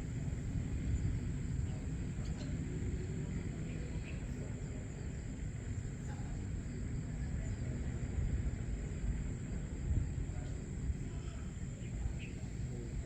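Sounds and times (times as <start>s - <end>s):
insect drone: 0.0s - 13.0s
faint bird chirps: 0.9s - 6.4s, 11.6s - 12.8s.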